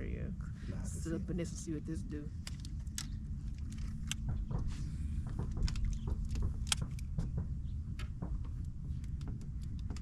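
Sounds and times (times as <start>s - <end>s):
light clicks and knocks: 2.4s - 10.0s.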